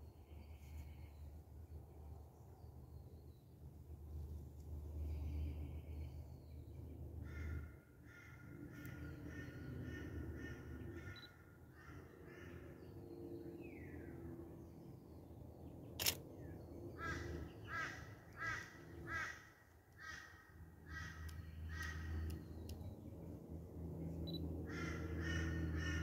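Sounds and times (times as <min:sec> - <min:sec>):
camera shutter click: 0:16.0 - 0:16.2.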